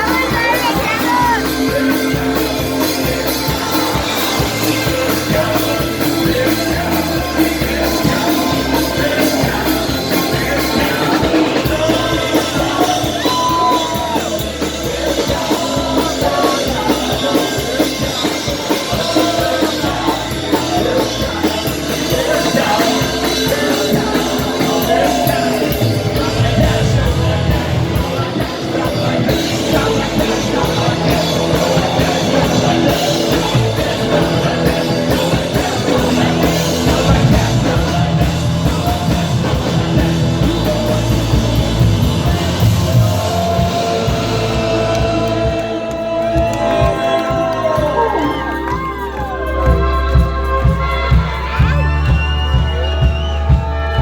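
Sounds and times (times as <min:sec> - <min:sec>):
live rock band playing: 0:00.0 - 0:54.0
shouted singing: 0:00.0 - 0:54.0.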